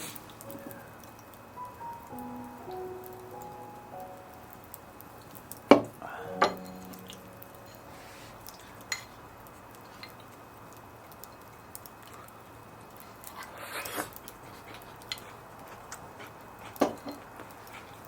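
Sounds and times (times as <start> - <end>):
soft background music: 0.0 - 8.9
tableware clinking: 5.7 - 7.9.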